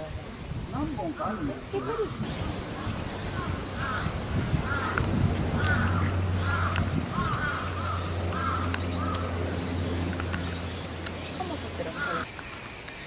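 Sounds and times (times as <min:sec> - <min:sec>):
steady low hum: 0:00.2 - 0:12.3
bird calling: 0:00.7 - 0:13.0.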